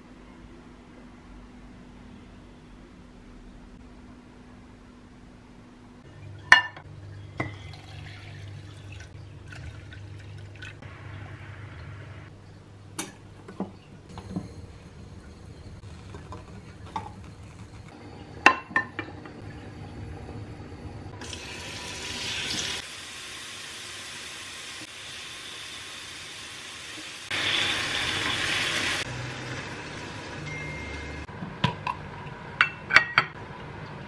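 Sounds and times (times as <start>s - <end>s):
water running: 7.4s - 18.3s, 21.1s - 31.2s.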